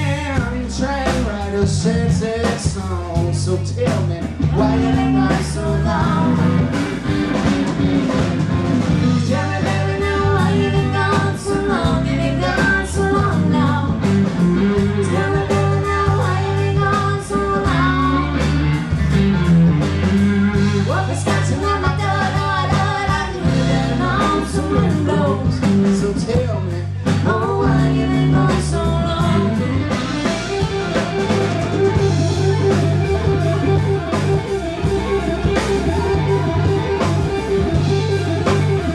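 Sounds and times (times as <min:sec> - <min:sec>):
person singing: 0:00.0 - 0:06.9, 0:08.8 - 0:19.0, 0:20.6 - 0:30.6
live blues-rock band: 0:00.0 - 0:38.9.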